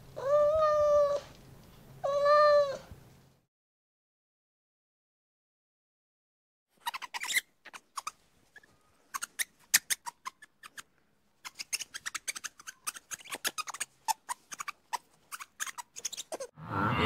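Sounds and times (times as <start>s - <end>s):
lemur clicking and chirping: 6.8s - 16.5s.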